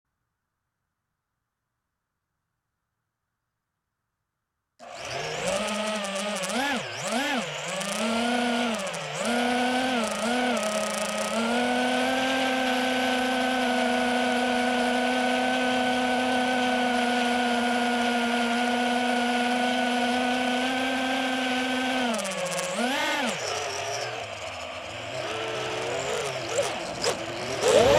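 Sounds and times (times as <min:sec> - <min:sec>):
drone propellers whining: 0:04.8 - 0:27.9.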